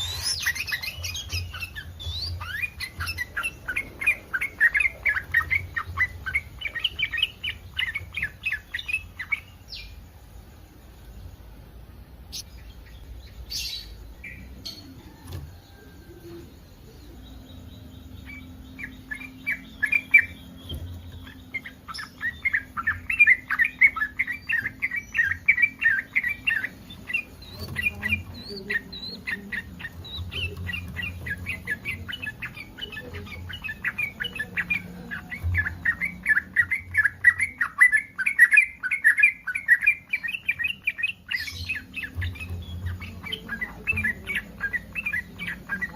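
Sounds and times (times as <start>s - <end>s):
bird singing chattering notes: 0.0s - 10.4s, 12.1s - 45.9s.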